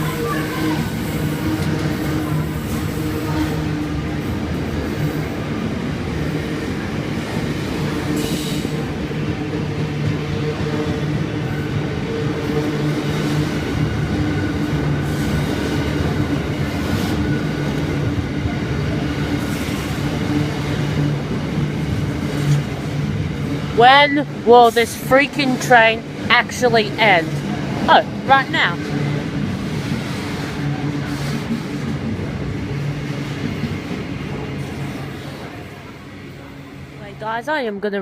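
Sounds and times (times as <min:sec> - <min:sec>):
freight train wagons rumbling: 0:00.0 - 0:38.0.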